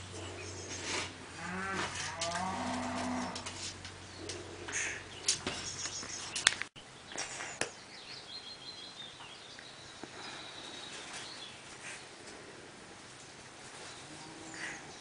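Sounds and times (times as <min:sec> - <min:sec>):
small bird chirping: 0:03.9 - 0:12.1.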